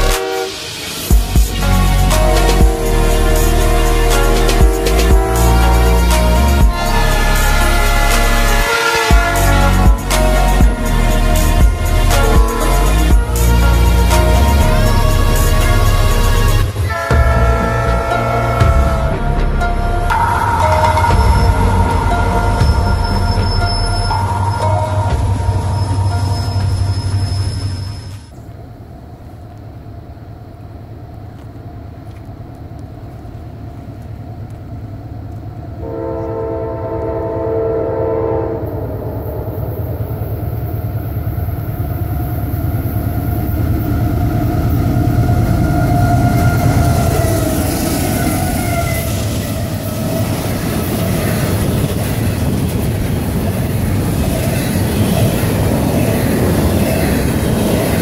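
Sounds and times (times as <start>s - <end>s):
locomotive air horn blast: 0.0s - 20.2s, 35.8s - 39.8s
freight train passing: 0.0s - 58.0s
wheels clattering on rail: 42.0s - 58.0s.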